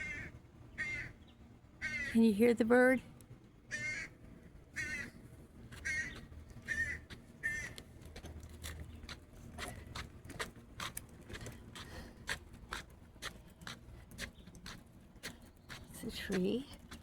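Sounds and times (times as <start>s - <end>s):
bird raspy calls: 0.0s - 2.2s, 3.7s - 4.2s, 4.8s - 7.8s.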